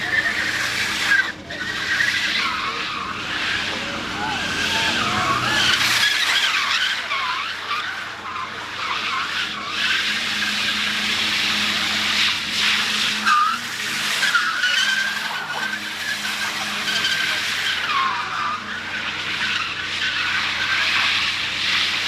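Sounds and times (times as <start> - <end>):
car tyres squealing: 0.0 - 22.0.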